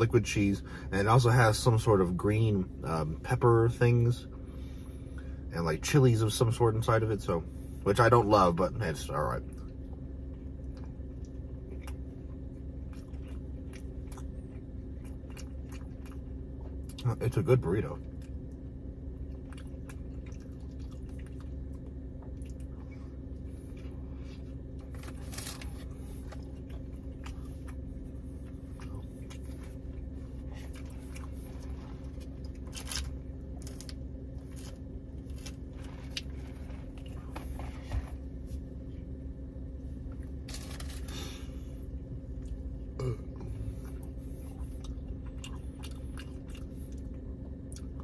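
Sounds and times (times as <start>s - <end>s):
low hum inside car: 0.0s - 48.0s
wet squishy chewing: 9.7s - 17.2s, 18.0s - 38.6s, 43.5s - 48.0s.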